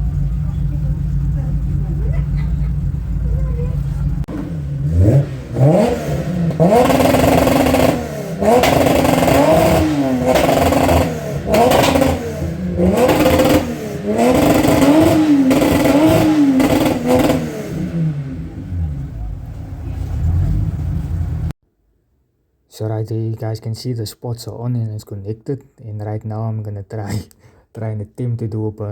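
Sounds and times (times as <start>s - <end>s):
car engine revving: 0.0s - 21.6s.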